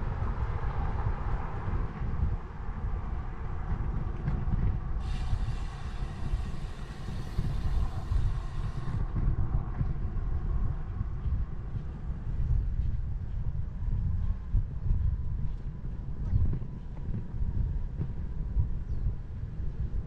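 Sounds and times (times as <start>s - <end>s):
road traffic: 0.0s - 12.3s
wind rumble on microphone: 0.0s - 20.0s.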